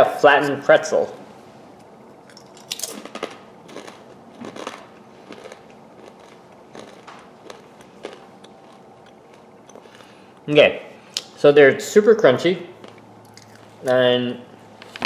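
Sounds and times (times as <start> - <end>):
person crunching crackers: 2.2 - 10.4, 12.7 - 14.0.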